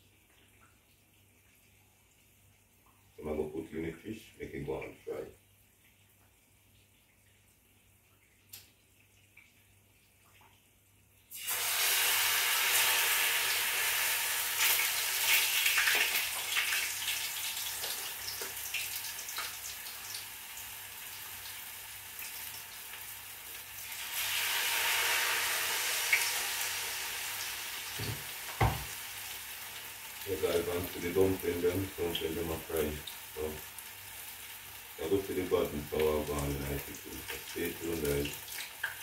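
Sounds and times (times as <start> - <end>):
fish frying in hot oil: 11.3 - 39.0.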